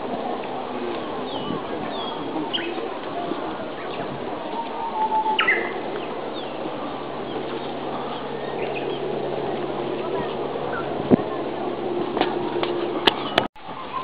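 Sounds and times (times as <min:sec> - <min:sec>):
steady background noise: 0:00.0 - 0:14.0
warbler singing: 0:01.0 - 0:02.9, 0:03.6 - 0:11.1, 0:12.8 - 0:14.0.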